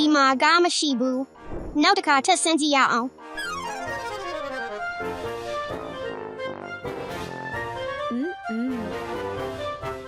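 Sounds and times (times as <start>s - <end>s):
light accordion melody: 3.2s - 10.0s.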